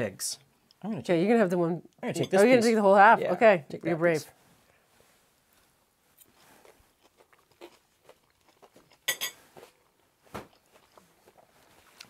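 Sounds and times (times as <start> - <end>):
people chewing food: 5.6 - 12.0.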